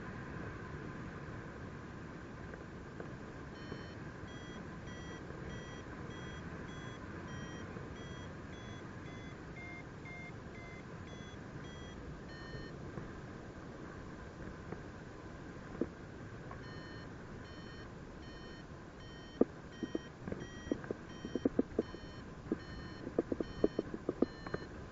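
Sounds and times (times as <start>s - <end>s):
variometer beeping: 3.6s - 12.8s, 16.6s - 24.7s.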